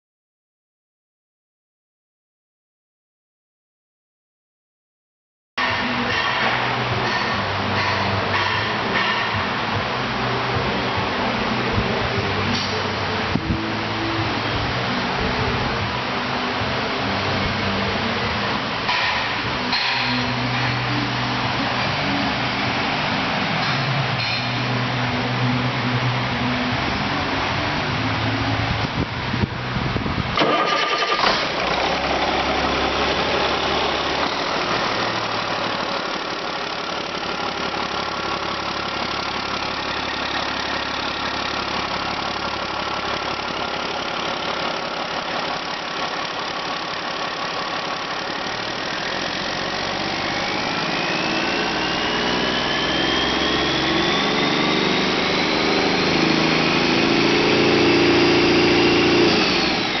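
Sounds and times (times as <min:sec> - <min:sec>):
diesel truck engine idling: 0:05.6 - 1:00.0
engine revving with whine: 0:17.0 - 1:00.0.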